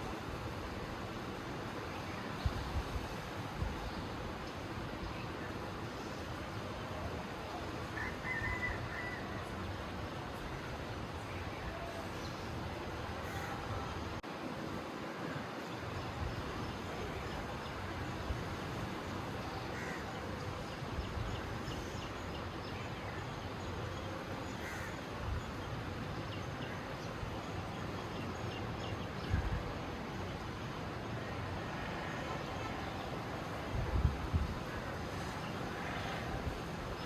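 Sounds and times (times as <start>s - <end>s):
outdoor background noise: 0.0s - 37.0s
crow caws: 13.2s - 13.7s, 19.8s - 20.1s, 24.6s - 25.0s.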